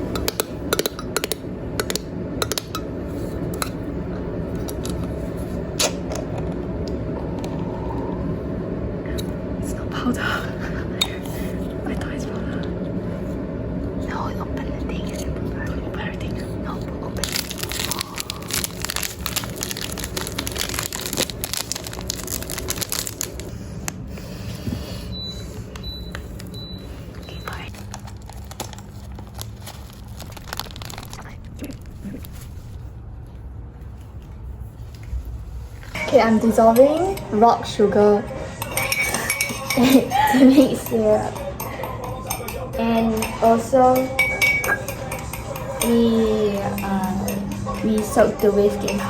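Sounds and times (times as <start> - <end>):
steady low hum: 0.0 - 49.0
kitchen items clicking and clinking: 17.2 - 23.5, 38.5 - 49.0
packet crinkling: 17.2 - 23.6, 27.5 - 32.8.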